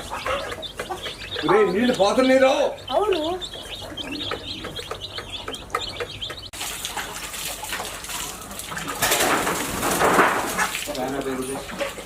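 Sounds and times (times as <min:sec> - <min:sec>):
small birds chirping: 0:00.0 - 0:09.0
water running: 0:05.7 - 0:12.0.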